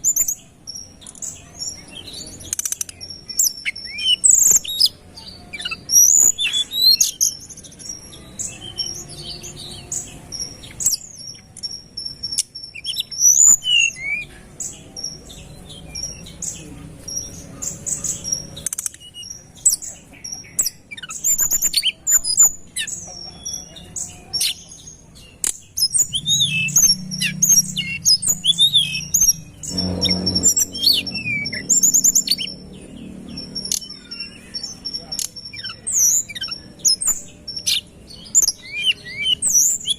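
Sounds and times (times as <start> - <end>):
bird singing chirps and trills: 0.0 - 39.9
faint low rumble: 25.9 - 33.5.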